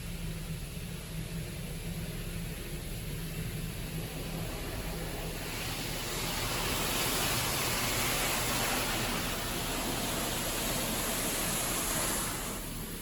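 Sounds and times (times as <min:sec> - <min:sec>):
car wash low hum: 0:00.0 - 0:13.0
car wash rushing hiss: 0:00.0 - 0:13.0.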